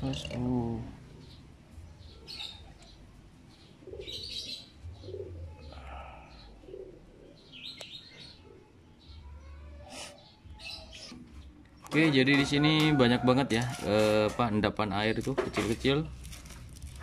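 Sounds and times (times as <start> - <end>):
low bird calls: 0.0 - 11.9
birds chirping: 0.0 - 16.1.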